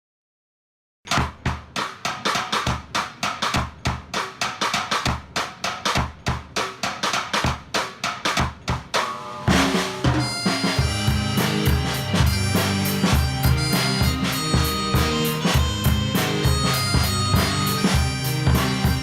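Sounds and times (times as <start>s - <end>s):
drum kit beat: 1.1s - 19.0s
held keyboard notes: 9.1s - 19.0s
bass notes: 9.3s - 19.0s.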